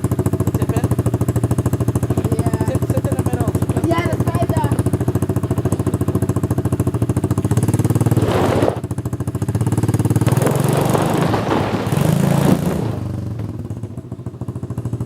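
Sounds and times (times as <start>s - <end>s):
short rushing noise: 8.0s - 8.9s, 10.2s - 13.6s.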